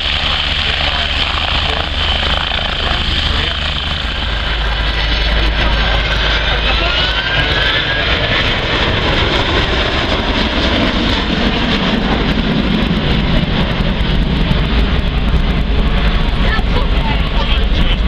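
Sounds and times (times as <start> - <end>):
aircraft engine rushing: 0.0 - 18.0.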